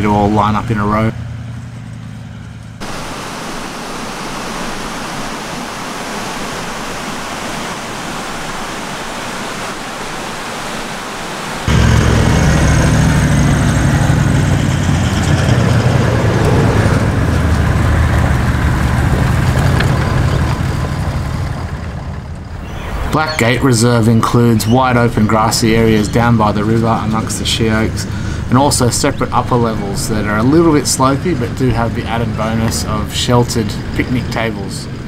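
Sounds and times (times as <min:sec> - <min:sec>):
vehicle engine running close by: 0:00.0 - 0:03.0, 0:11.7 - 0:23.1, 0:25.3 - 0:35.0
steady outdoor hiss: 0:02.8 - 0:11.7.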